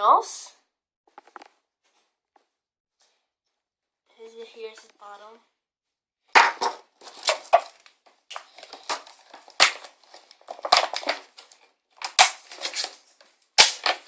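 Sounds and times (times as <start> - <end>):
plastic packaging crinkling: 7.0 - 14.0.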